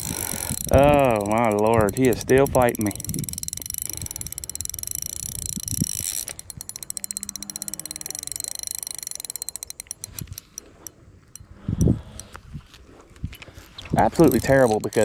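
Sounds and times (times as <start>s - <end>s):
fishing reel hiss: 0.0s - 11.0s
fishing reel clicking: 0.0s - 12.4s, 13.9s - 15.0s.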